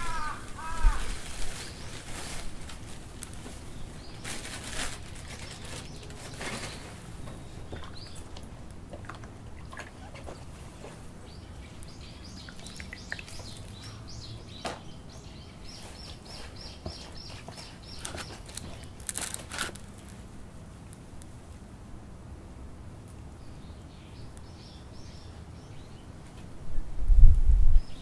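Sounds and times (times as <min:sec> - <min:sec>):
dry moss crackling: 0:00.0 - 0:09.0, 0:15.7 - 0:21.6
bird chirping: 0:09.6 - 0:19.1.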